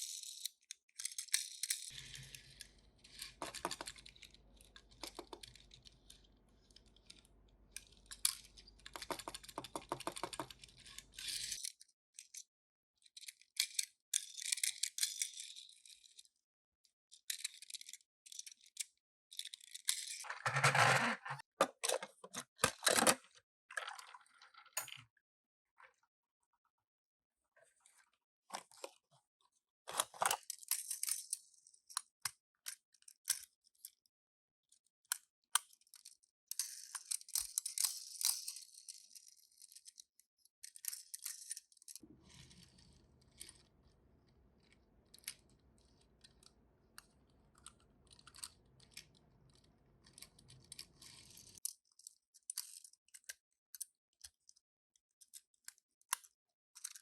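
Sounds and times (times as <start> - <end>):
small clicks and taps: 7.8 - 11.1.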